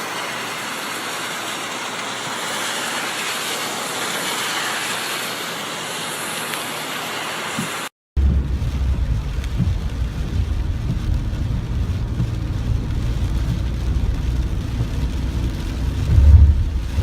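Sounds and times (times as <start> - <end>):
rain falling: 0.0 - 17.0
low rumble: 8.2 - 17.0.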